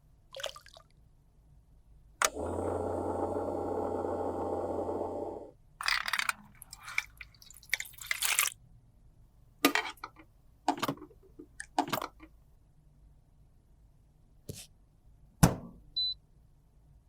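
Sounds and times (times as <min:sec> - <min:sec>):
small motor humming: 0:02.2 - 0:05.5.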